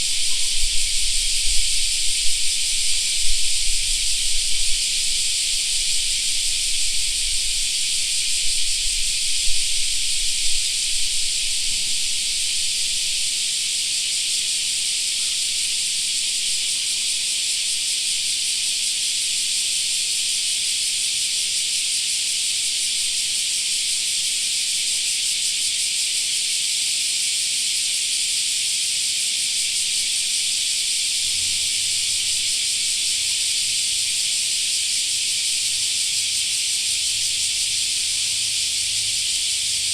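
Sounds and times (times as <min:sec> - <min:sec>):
cicadas singing: 0:00.0 - 0:39.9.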